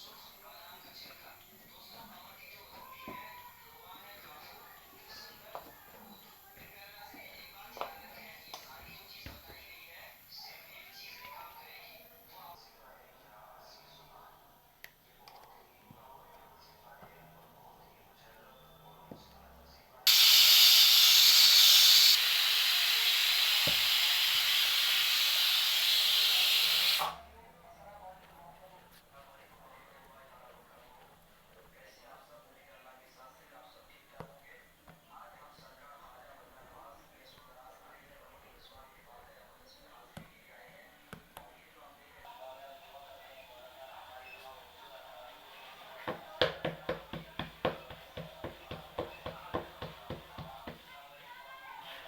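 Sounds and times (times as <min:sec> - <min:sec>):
steam hissing: 0:20.1 - 0:27.2, 0:42.4 - 0:51.2
knife chopping on cutting board: 0:46.1 - 0:50.8.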